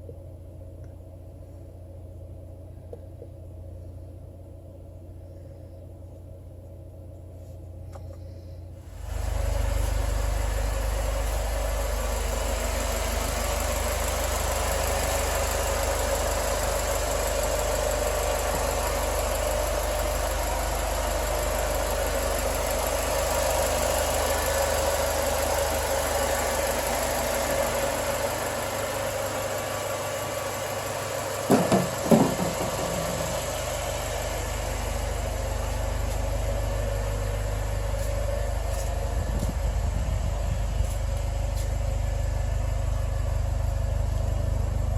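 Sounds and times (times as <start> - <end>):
car engine idling: 0.2 - 44.9
short knocks: 31.5 - 33.3.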